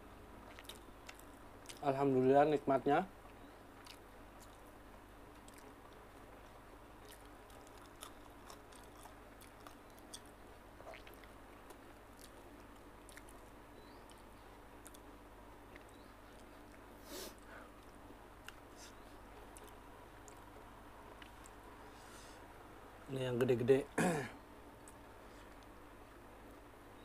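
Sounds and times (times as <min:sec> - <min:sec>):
low steady hum: 0:00.0 - 0:27.0
person chewing food: 0:00.4 - 0:01.8, 0:03.2 - 0:04.7, 0:05.3 - 0:17.0, 0:17.7 - 0:21.6.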